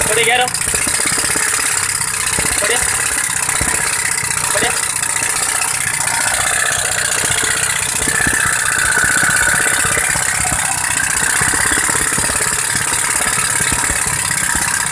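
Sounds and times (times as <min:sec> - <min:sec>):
compressed-air engine running: 0:00.0 - 0:14.9
exhaust puffs and knocks: 0:00.0 - 0:14.9
faint whistle-like tone: 0:05.2 - 0:14.9.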